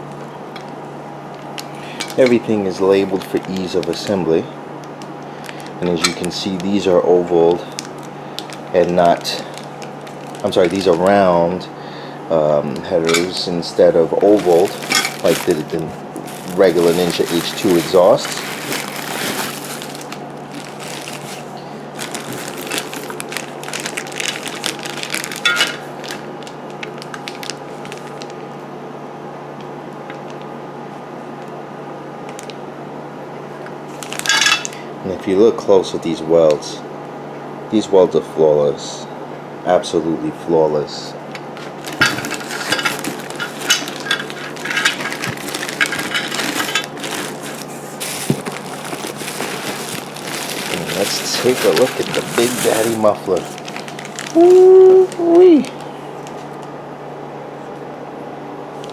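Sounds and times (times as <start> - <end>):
low electrical hum: 0.0 - 58.9
packaging crinkling: 0.6 - 11.5, 14.1 - 28.4, 33.9 - 34.8, 41.5 - 56.6.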